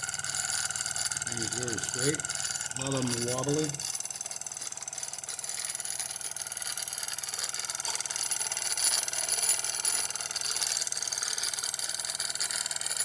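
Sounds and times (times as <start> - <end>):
steam engine chuffing: 1.2 - 3.8.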